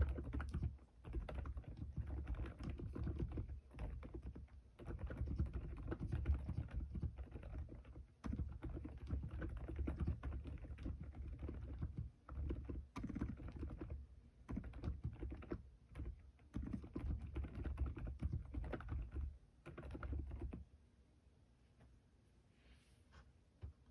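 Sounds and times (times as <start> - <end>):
soft keyboard typing: 0.0 - 20.7.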